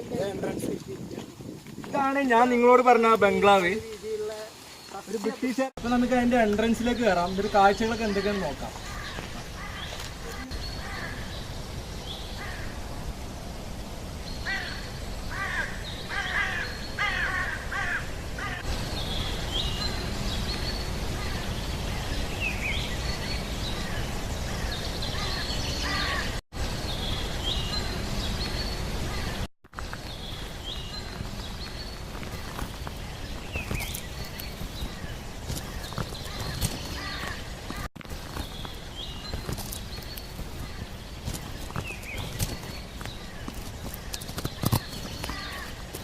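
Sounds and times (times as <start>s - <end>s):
wind rumble on microphone: 0.0s - 2.5s
birds chirping: 0.0s - 13.4s, 14.2s - 46.0s
birds cawing: 8.1s - 11.4s, 12.4s - 12.8s, 14.4s - 18.7s, 23.8s - 26.4s, 33.4s - 38.4s, 39.5s - 46.0s.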